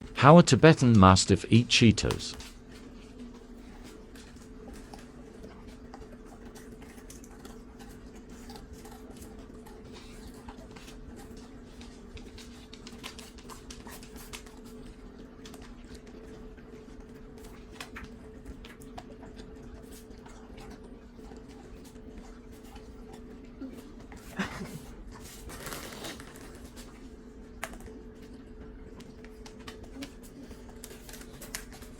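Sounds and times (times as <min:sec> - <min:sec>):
dog crunching crisp snacks: 0:29.1 - 0:31.9.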